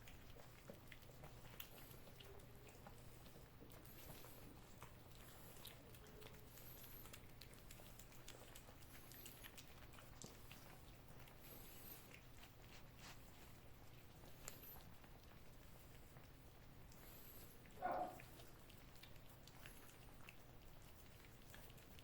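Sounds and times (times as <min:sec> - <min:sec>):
cats licking and smacking: 0:00.0 - 0:22.0
faint steady hum: 0:00.0 - 0:22.0.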